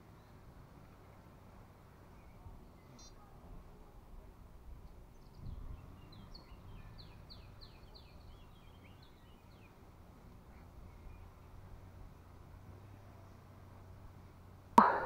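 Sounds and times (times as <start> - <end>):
songbird singing: 0.0 - 15.0
wind rumble on microphone: 3.4 - 13.1.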